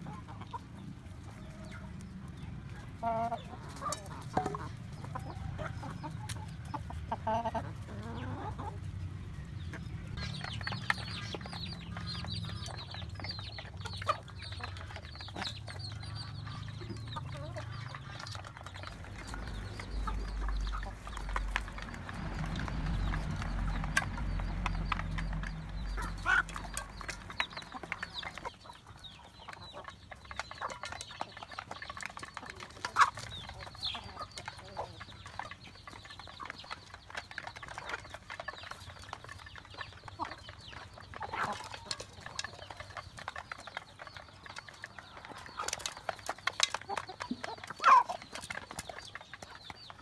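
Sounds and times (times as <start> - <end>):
chickens clucking: 0.0 - 50.0
low rumble: 16.2 - 28.3.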